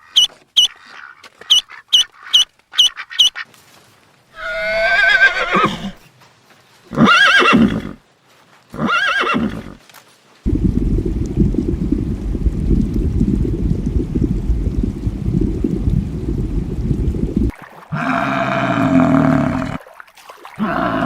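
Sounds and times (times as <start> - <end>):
horse whinnying: 4.4 - 6.0, 6.9 - 8.0, 8.8 - 9.8, 17.9 - 19.8, 20.6 - 21.0
steady rushing noise: 10.5 - 17.5.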